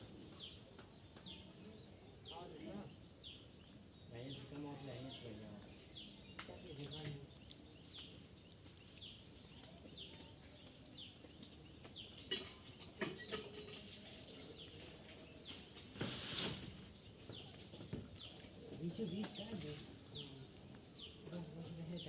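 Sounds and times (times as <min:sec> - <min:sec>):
rushing rustling noise: 0:15.9 - 0:17.0.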